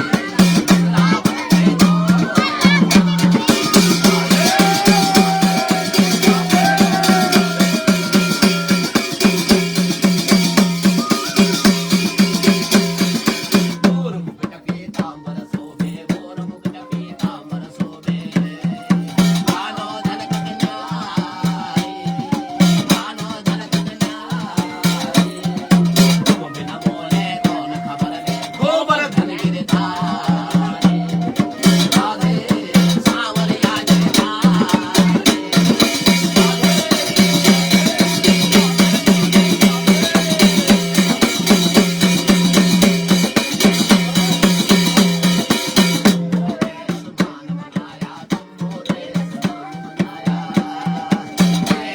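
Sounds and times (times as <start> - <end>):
steady held tones: 0.0 - 13.8
drums beating fast rhythm: 0.0 - 51.9.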